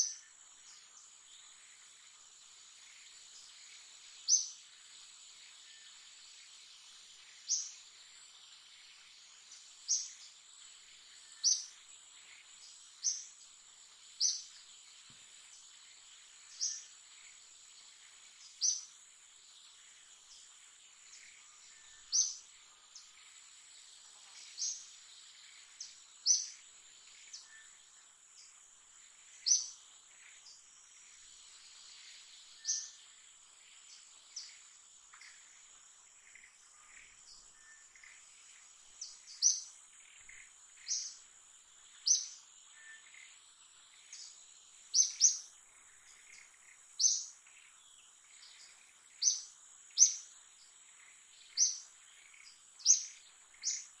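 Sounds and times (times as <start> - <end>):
sharp bird chirps: 39.0 - 41.2, 44.0 - 47.4, 51.4 - 54.0.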